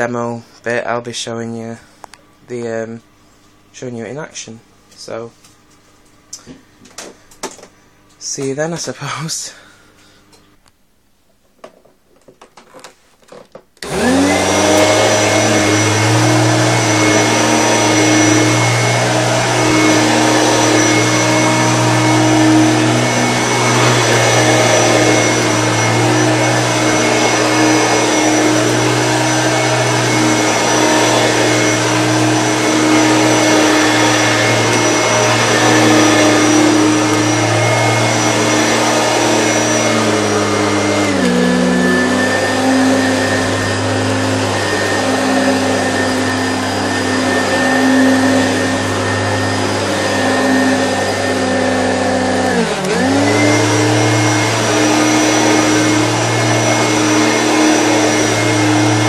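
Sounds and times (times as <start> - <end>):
vacuum cleaner motor whining: 12.6 - 59.0.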